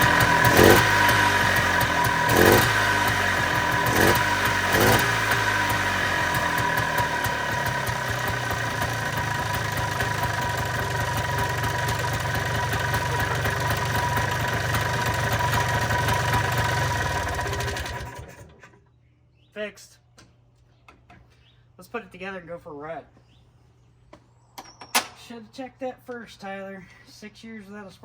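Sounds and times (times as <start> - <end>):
two-stroke engine running: 0.0 - 18.6.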